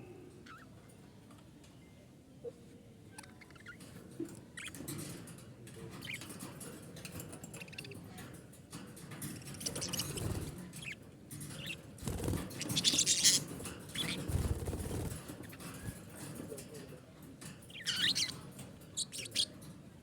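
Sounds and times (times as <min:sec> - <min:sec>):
budgerigars chirping and chattering: 0:03.1 - 0:05.1, 0:05.9 - 0:06.5, 0:07.5 - 0:08.1, 0:09.2 - 0:16.1, 0:17.7 - 0:19.7
light rustling and bumps: 0:03.8 - 0:20.0.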